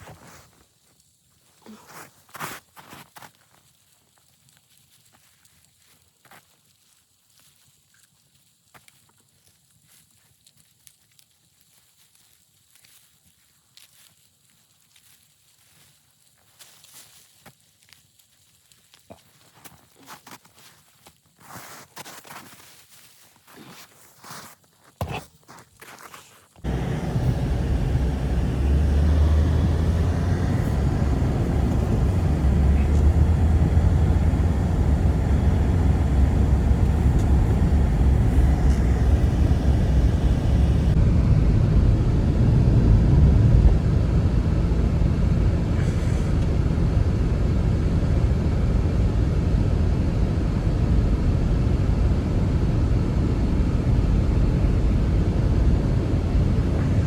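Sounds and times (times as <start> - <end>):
strong steady wind: 26.7 - 57.0.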